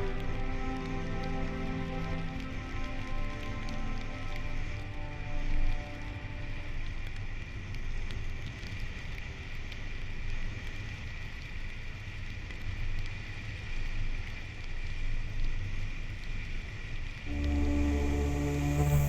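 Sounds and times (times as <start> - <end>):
low rumble: 17.3 - 19.0.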